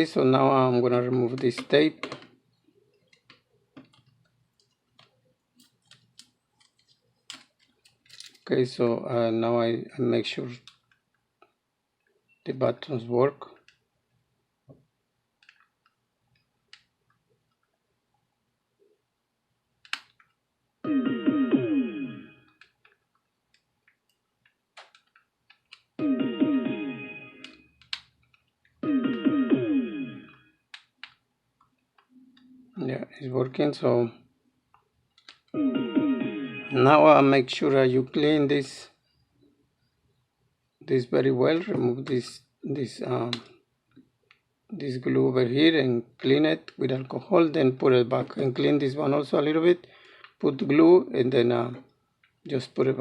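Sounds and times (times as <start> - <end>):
speaker chime of falling notes: 20.9 - 22.4, 26.0 - 27.5, 28.8 - 30.4, 35.6 - 37.0.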